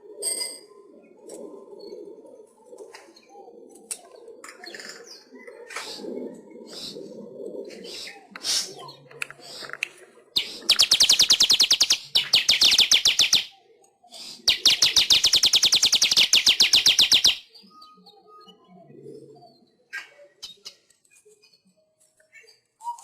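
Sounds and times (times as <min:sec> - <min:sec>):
weaver bird song rapid high notes: 0:10.4 - 0:13.6, 0:14.2 - 0:17.7.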